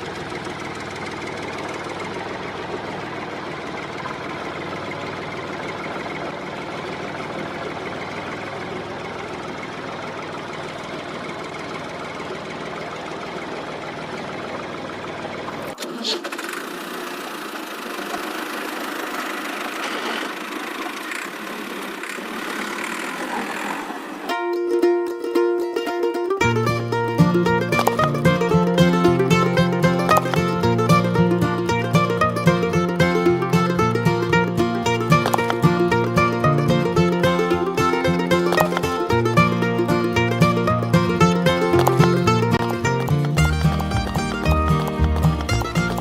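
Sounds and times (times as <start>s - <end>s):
machine motor running: 0.0s - 24.3s, 27.2s - 46.0s.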